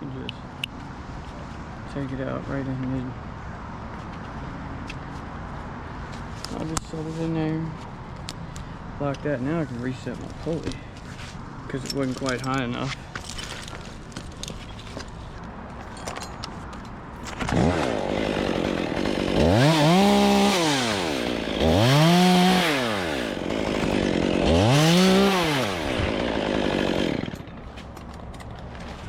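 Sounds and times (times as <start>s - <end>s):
two-stroke chainsaw revving: 17.4s - 27.6s.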